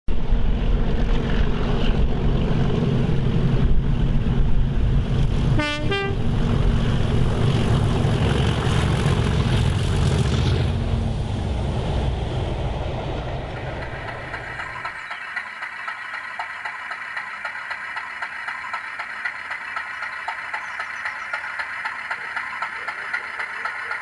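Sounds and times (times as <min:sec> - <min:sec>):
train rumbling: 0:00.1 - 0:24.0
train horn two notes: 0:05.6 - 0:06.2.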